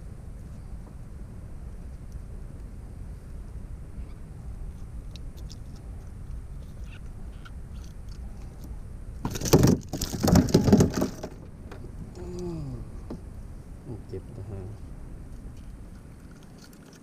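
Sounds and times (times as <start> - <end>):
faint scattered ticks: 1.7 - 8.8.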